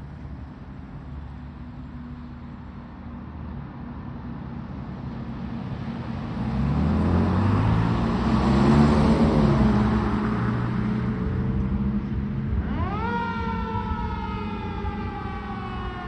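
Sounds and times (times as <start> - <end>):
fire engine passing by: 5.7 - 16.0.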